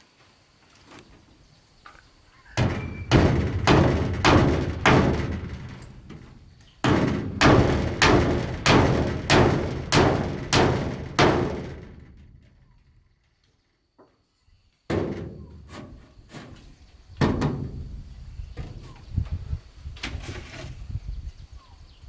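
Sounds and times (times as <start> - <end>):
heavy blows striking wood: 2.6 - 12.5.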